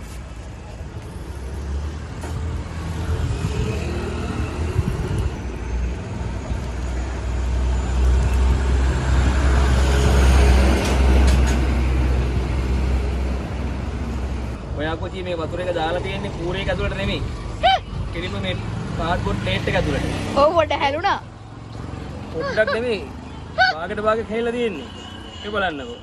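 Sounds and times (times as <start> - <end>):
heavy vehicle passing by: 1.1 - 14.6.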